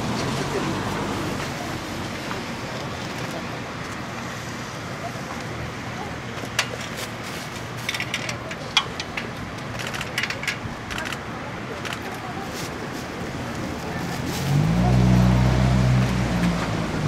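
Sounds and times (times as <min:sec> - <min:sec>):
sharp clicks and knocks: 0:07.8 - 0:12.2.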